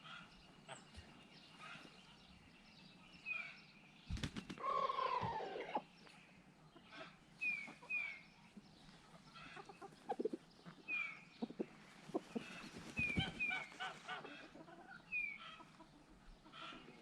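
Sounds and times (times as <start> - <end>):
chickens peeping: 4.1 - 17.0
drawn-out falling chicken call: 4.6 - 5.8.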